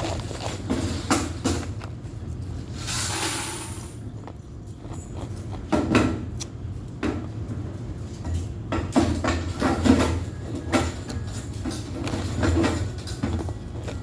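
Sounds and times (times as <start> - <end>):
ice being crunched and chewed: 0.0 - 0.7
low hum of laundry machines: 0.0 - 14.0.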